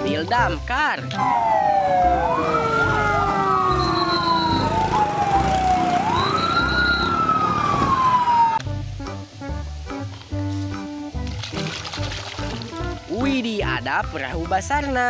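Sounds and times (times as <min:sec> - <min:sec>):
fire engine sirens wailing: 0:01.1 - 0:08.6.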